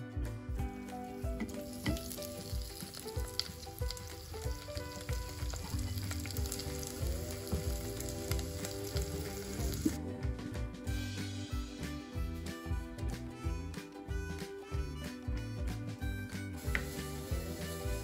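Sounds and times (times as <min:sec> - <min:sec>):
tomatoes sizzling in hot oil: 0:00.7 - 0:10.0, 0:16.6 - 0:18.0.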